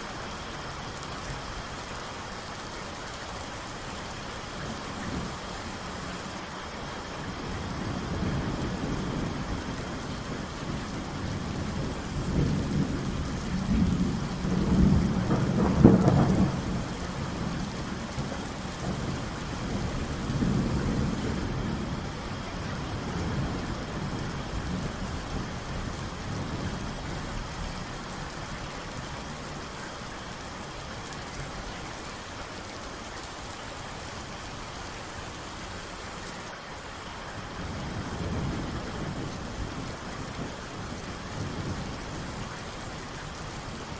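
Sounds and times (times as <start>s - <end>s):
steady rain: 0.0s - 43.9s
thunder rumbling: 7.4s - 28.0s.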